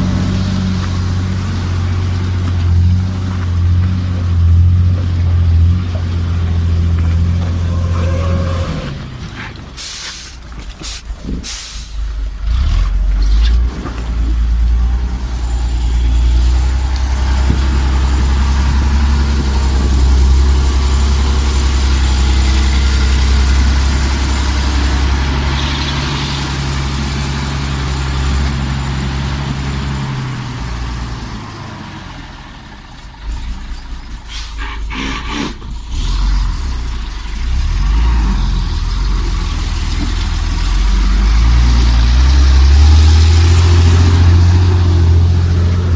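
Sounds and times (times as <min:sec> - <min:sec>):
diesel truck engine droning: 0:00.0 - 0:45.9
air hissing: 0:09.8 - 0:12.0.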